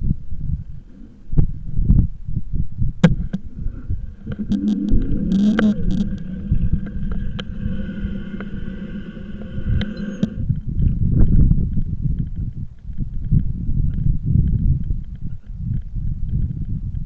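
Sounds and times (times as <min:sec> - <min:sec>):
wind rumble while riding bike: 0:00.0 - 0:17.0
sharp clicks: 0:04.1 - 0:17.0.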